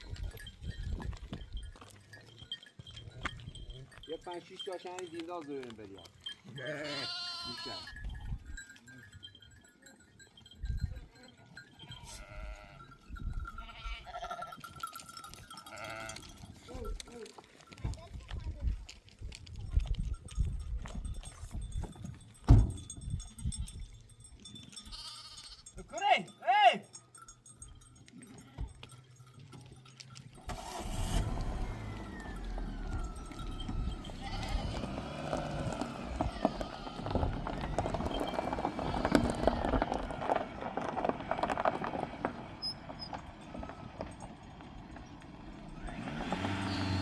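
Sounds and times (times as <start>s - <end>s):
sheep and goats bleating: 5.9s - 9.3s, 11.0s - 17.4s, 24.6s - 26.8s, 28.1s - 30.2s, 31.7s - 40.6s
vehicle engine humming: 29.8s - 47.0s.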